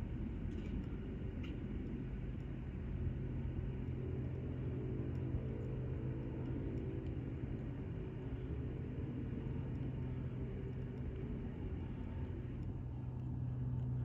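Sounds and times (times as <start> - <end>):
jet engine drone: 0.0 - 14.0.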